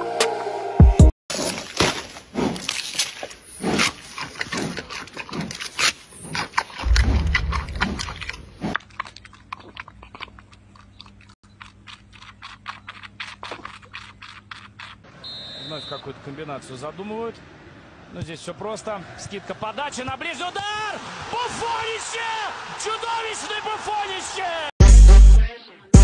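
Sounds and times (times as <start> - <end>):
panda chewing bamboo: 1.3 - 15.1
kitten suckling clicks: 11.5 - 15.0.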